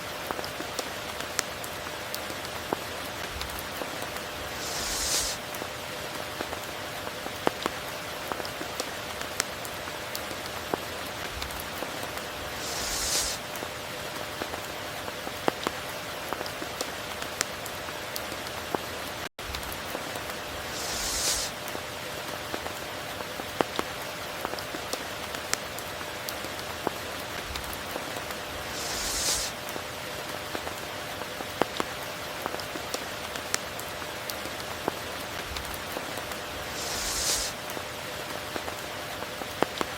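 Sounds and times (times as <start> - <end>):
steady rain hiss: 0.0 - 39.9
raindrop ticks: 0.1 - 4.6, 5.2 - 12.3, 15.2 - 36.5
brief high swish: 4.6 - 5.4, 12.6 - 13.4, 20.7 - 21.6, 28.7 - 29.5.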